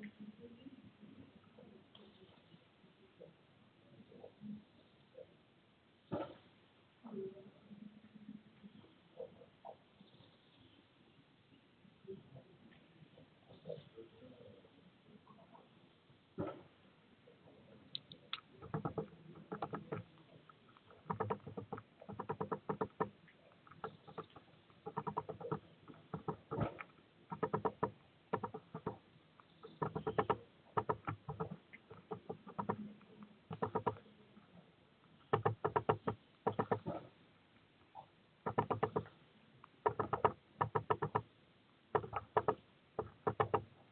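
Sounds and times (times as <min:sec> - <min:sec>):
bird pecking with sharp taps: 0:17.9 - 0:34.1, 0:35.1 - 0:37.1, 0:38.4 - 0:41.3, 0:41.9 - 0:43.8.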